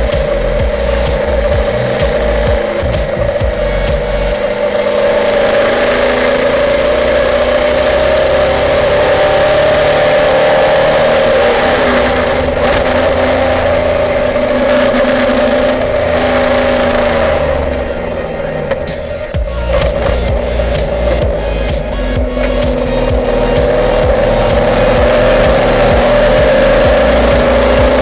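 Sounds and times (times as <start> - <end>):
race car engine: 0.0 - 28.0.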